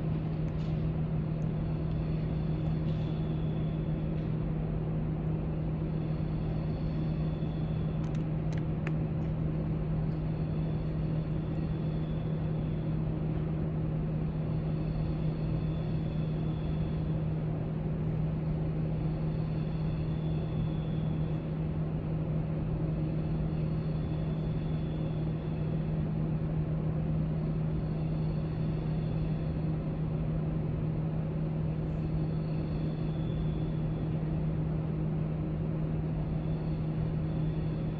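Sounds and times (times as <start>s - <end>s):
low room hum: 0.0s - 37.9s
faint clicks: 8.0s - 9.4s.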